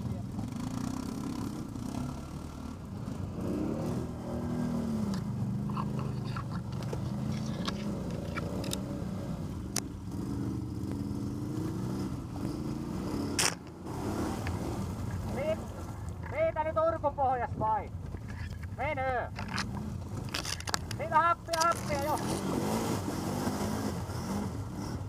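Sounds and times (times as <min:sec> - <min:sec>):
atv engine running under load: 0:00.0 - 0:16.4
sharp clicks and knocks: 0:18.0 - 0:22.4.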